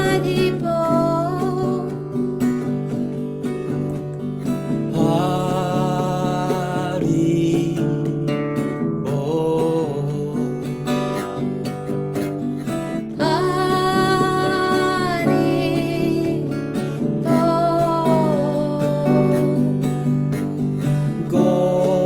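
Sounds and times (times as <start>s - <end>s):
devotional melody: 0.0s - 22.0s.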